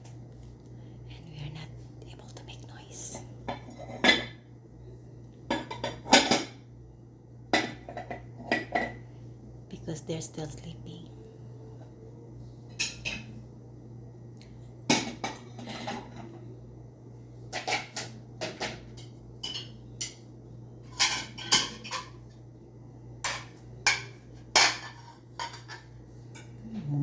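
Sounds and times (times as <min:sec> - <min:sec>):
steady low hum: 0:00.0 - 0:27.0
dishes and utensils clinking: 0:03.5 - 0:04.4, 0:05.5 - 0:06.7, 0:07.5 - 0:09.1, 0:12.6 - 0:13.4, 0:14.9 - 0:16.5, 0:17.5 - 0:20.2, 0:20.8 - 0:22.4, 0:23.2 - 0:26.6.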